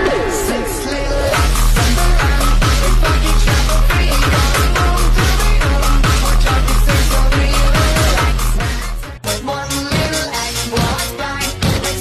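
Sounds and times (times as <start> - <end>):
synth tones: 0.0 - 2.6
heavy kick drum: 0.0 - 9.0
electronic dance music: 0.0 - 12.0.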